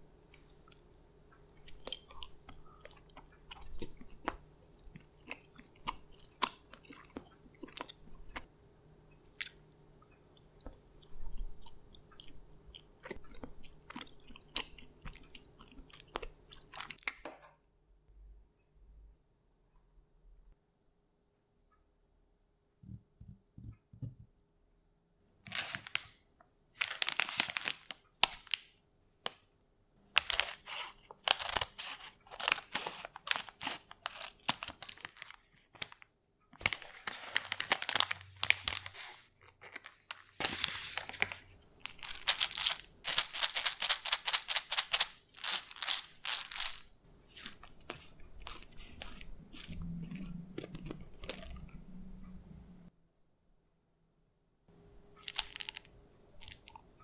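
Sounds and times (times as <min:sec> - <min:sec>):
crisp crinkling and rustling: 0:25.5 - 0:26.2, 0:26.8 - 0:29.4, 0:30.1 - 0:51.8, 0:55.2 - 0:56.8.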